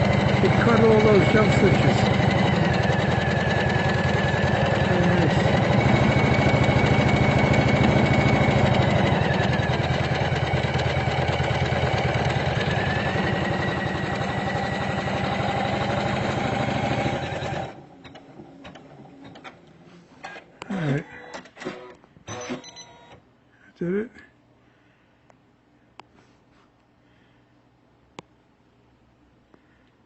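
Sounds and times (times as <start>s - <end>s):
embroidery machine stitching: 0.0s - 19.6s.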